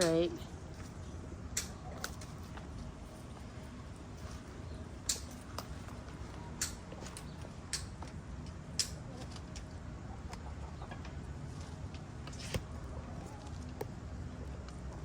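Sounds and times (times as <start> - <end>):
chickens clucking: 9.9 - 11.7.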